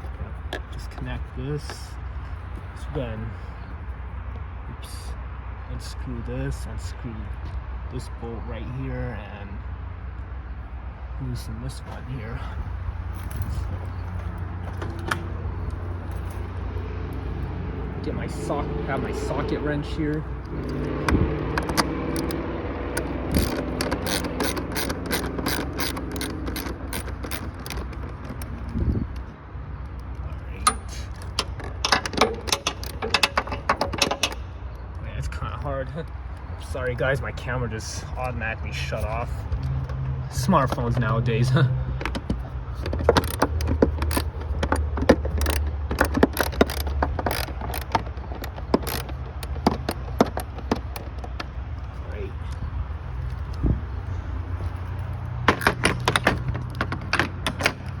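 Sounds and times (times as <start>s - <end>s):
ratcheting socket wrench clicking: 20.4s - 28.8s, 30.6s - 34.5s, 42.0s - 51.6s.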